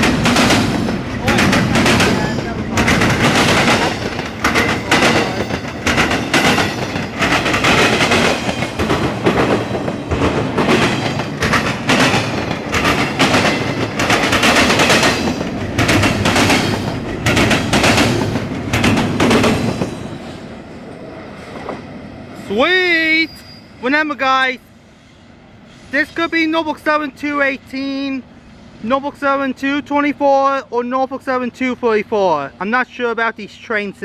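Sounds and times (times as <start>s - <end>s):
train wheels clattering: 0.0s - 20.5s
freight train passing: 0.0s - 34.0s.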